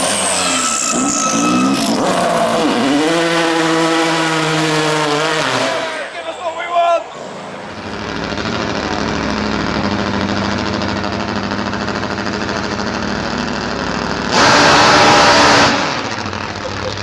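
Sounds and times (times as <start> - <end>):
car engine running: 7.2 - 17.0.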